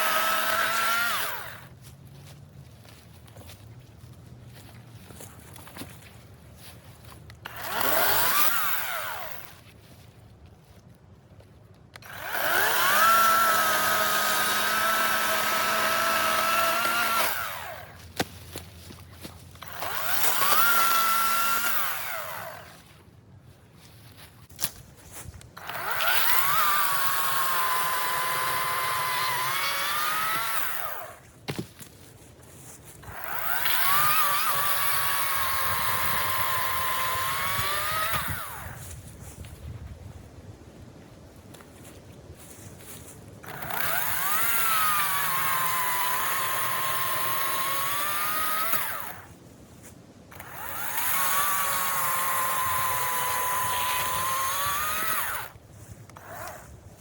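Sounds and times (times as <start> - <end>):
battery chainsaw high whine: 0.0 - 1.9, 7.4 - 9.6, 11.9 - 18.0, 19.6 - 23.0, 25.6 - 31.6, 32.9 - 39.4, 43.4 - 49.4, 50.3 - 57.0.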